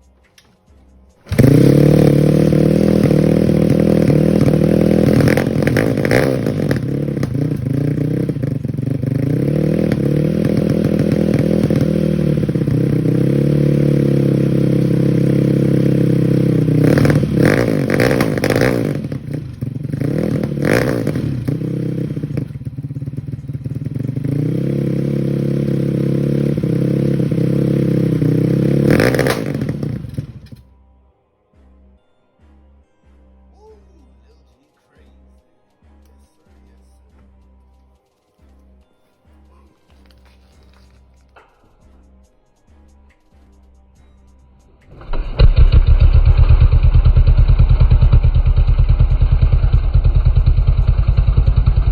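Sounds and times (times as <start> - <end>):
motorcycle engine revving: 1.2 - 30.7, 44.9 - 51.9
exhaust pops: 1.3 - 30.6, 44.8 - 51.9.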